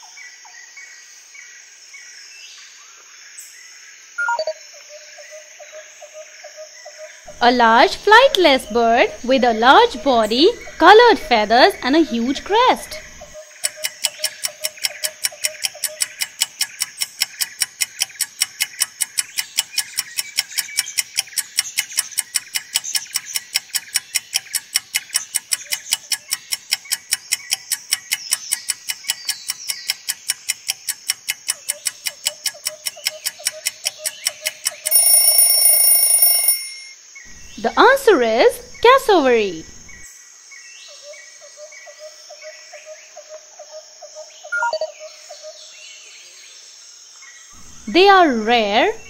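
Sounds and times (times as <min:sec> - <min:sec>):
clock ticking rapidly: 0:07.3 - 0:36.9
loud alarm tone: 0:34.8 - 0:36.9.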